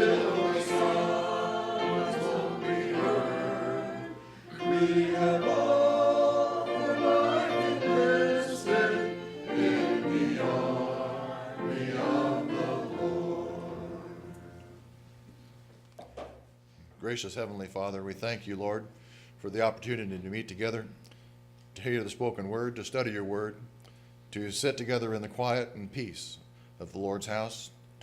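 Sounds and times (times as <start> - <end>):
congregation singing a hymn: 0.0 - 14.8
instrumental accompaniment: 0.0 - 14.8.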